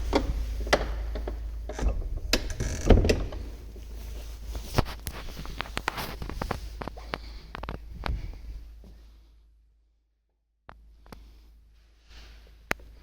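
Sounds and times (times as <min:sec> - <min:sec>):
low steady hum: 0:00.0 - 0:09.8.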